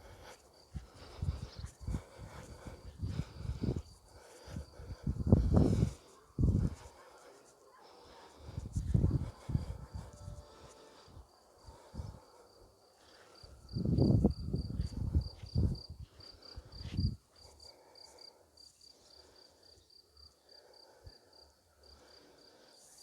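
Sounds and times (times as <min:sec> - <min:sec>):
cricket chirping: 0:00.0 - 0:23.0
low rumbling on microphone: 0:04.8 - 0:06.8, 0:08.5 - 0:10.4, 0:13.8 - 0:16.0.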